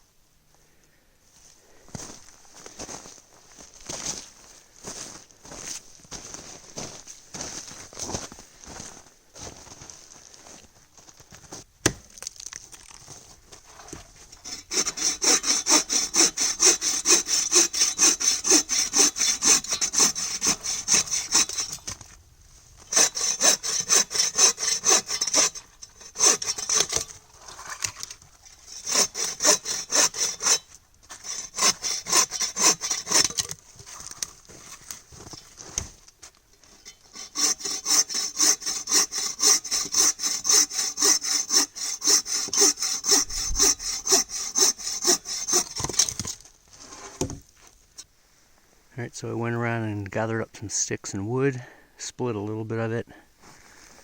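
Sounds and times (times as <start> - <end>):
hand saw cutting wood: 13.7 - 22.0, 22.8 - 35.9, 36.7 - 47.4.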